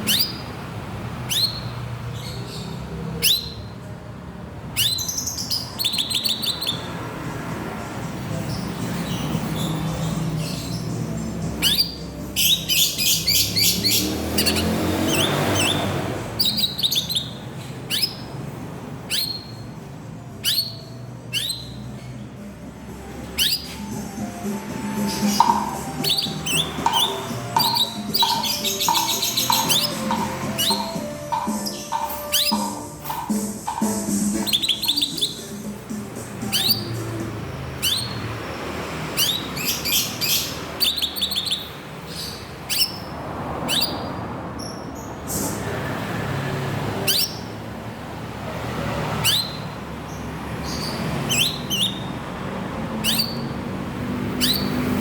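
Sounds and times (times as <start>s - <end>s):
bird whistling upward calls: 0.0s - 0.5s, 1.3s - 1.7s, 3.2s - 3.7s, 4.8s - 6.9s, 11.6s - 15.8s, 16.4s - 18.3s, 19.1s - 19.6s, 20.4s - 21.8s, 23.4s - 23.9s, 24.8s - 35.5s, 36.5s - 37.0s, 37.8s - 38.2s, 39.2s - 41.7s, 43.7s - 43.9s, 49.2s - 49.7s, 50.8s - 52.1s, 53.0s - 53.6s, 54.4s - 54.8s
background music: 22.3s - 38.5s.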